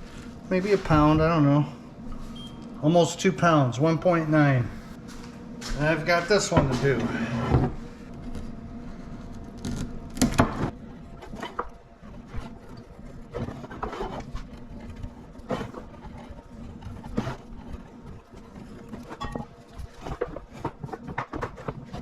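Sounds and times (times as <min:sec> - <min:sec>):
cable scraping and knocking: 0:09.4 - 0:22.0.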